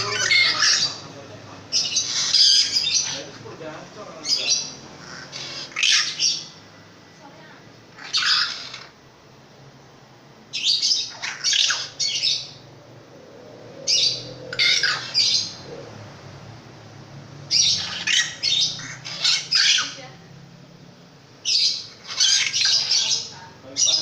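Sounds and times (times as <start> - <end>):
shrike harsh rasping squawks: 0.0 - 3.5, 4.2 - 6.9, 7.8 - 9.1, 10.5 - 12.7, 13.8 - 16.5, 17.4 - 20.4, 21.2 - 24.0.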